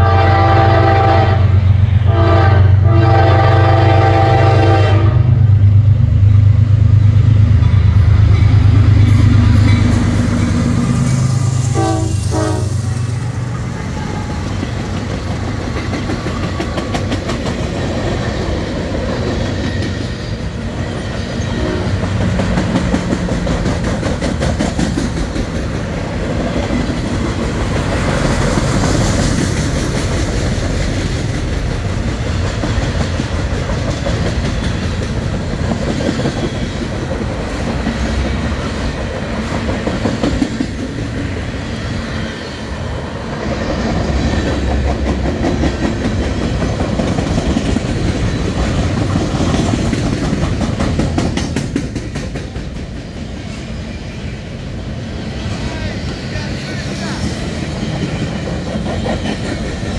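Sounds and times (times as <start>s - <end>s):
locomotive air horn: 0.0s - 5.4s, 11.6s - 13.0s, 21.5s - 22.1s
train wheels clattering on rails: 5.6s - 54.6s, 55.3s - 59.9s.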